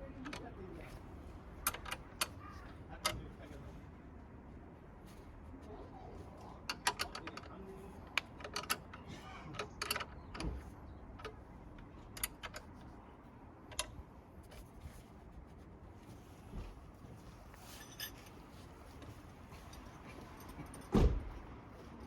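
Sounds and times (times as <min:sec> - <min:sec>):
metal parts and tools clinking: 0:00.1 - 0:03.4, 0:06.4 - 0:13.0, 0:17.2 - 0:21.4.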